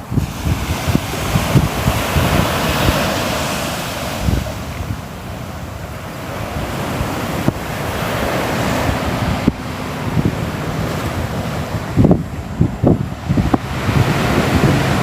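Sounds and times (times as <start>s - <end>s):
surf washing onto shore: 0.0s - 15.0s
low rumbles: 4.2s - 15.0s.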